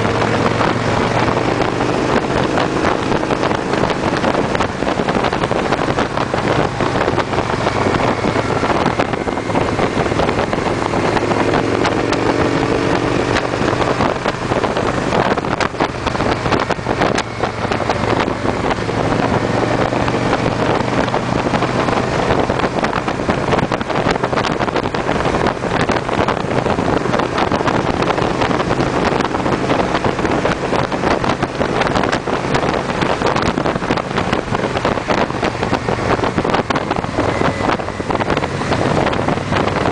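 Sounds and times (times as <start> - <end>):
motorcycle engines cruising: 0.0 - 39.9
wind noise on microphone: 0.0 - 39.9.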